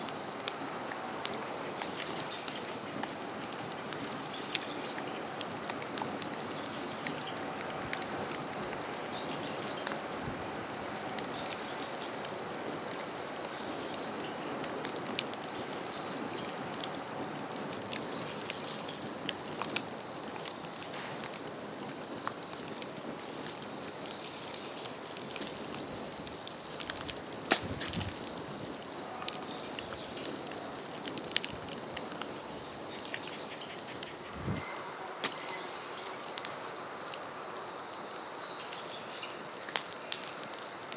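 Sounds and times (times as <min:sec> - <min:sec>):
bamboo fire crackling: 0:00.0 - 0:40.9
high insect trill: 0:00.2 - 0:04.5, 0:10.8 - 0:40.9
fire popping: 0:14.9 - 0:35.4.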